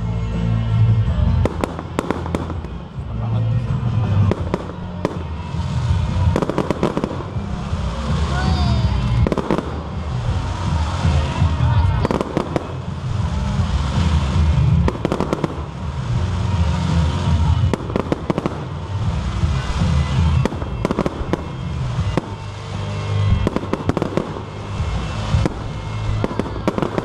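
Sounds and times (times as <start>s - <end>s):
continuous low rumble: 0.0s - 27.0s
sharp cracks and bangs: 1.4s - 2.9s, 9.0s - 27.0s.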